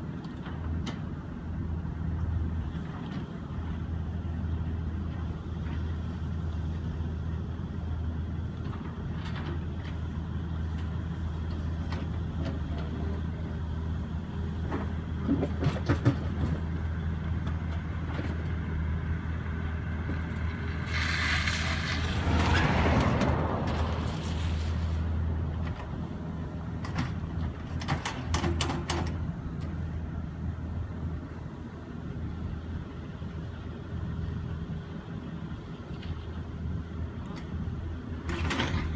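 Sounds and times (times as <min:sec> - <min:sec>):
excavator diesel engine running: 0:00.6 - 0:38.9
bucket scraping frozen ground: 0:20.6 - 0:25.4
loud grinding scrape: 0:20.8 - 0:25.2.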